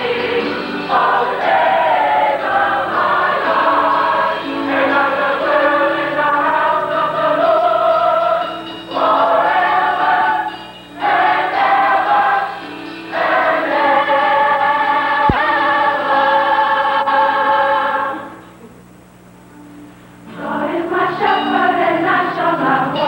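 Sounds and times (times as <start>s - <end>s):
choir singing held chords: 0.0s - 18.6s, 20.3s - 23.0s.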